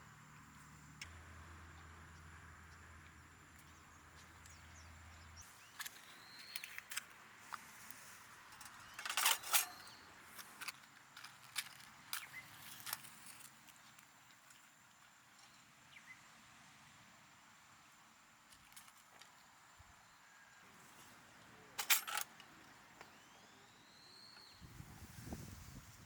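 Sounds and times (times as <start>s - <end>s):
faint hiss: 23.0s - 26.0s.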